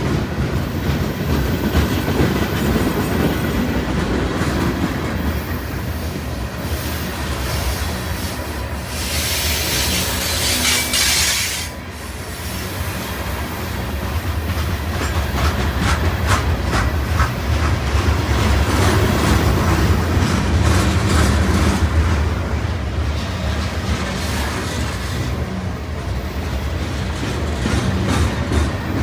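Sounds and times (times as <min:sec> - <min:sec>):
freight train rumbling past: 0:00.0 - 0:29.0
wheels squealing: 0:05.2 - 0:12.9.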